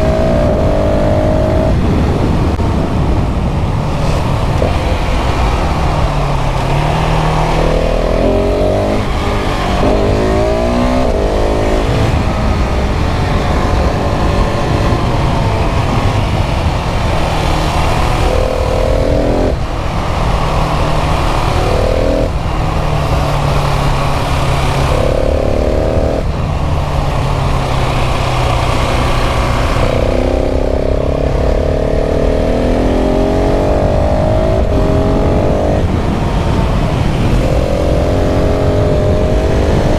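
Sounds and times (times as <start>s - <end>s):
motorcycle engine revving through gears: 0.0s - 39.9s
wind rush: 0.0s - 39.9s.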